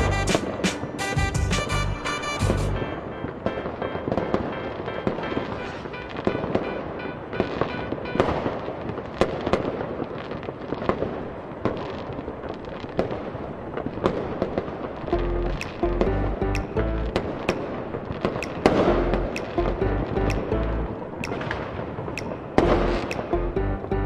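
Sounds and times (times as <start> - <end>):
music playing: 0.0 - 8.3, 15.1 - 17.2, 18.7 - 21.0, 22.6 - 24.0
fireworks bangs and crackles: 0.0 - 15.8, 17.2 - 19.6.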